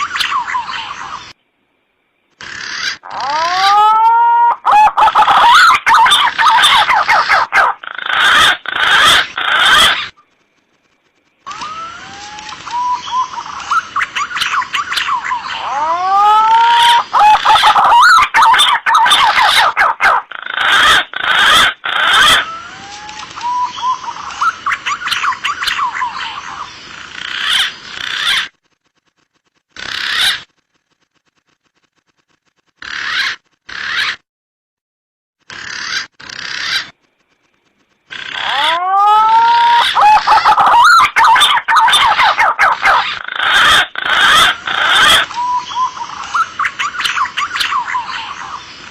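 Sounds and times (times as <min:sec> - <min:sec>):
rough overlapping bird calls: 0:00.0 - 0:01.4, 0:02.2 - 0:31.6, 0:32.7 - 0:34.2, 0:35.5 - 0:48.9
pigeons whistling calls: 0:02.8 - 0:10.2, 0:11.5 - 0:26.4, 0:38.2 - 0:48.9.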